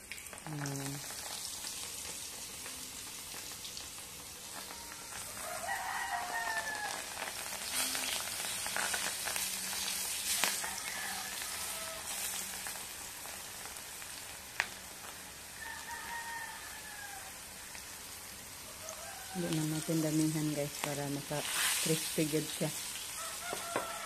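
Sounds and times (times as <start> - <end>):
food deep-frying in oil: 0.0 - 24.0
rooster crowing: 4.6 - 7.2, 10.4 - 12.5, 15.6 - 17.5, 18.6 - 20.1, 23.2 - 24.0.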